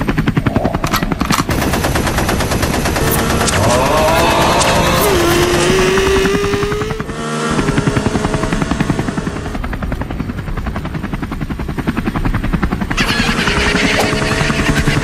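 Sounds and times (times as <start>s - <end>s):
fast mechanical chopping: 0.3s - 7.1s.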